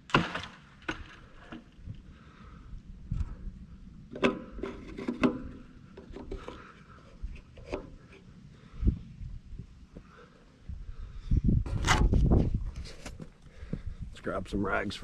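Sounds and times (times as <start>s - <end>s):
rubbing and scraping: 4.3s - 6.8s, 11.7s - 13.2s.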